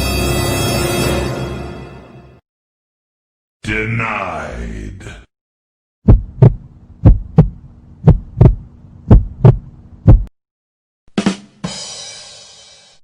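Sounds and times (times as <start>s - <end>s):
heartbeat thumps: 6.0s - 10.3s.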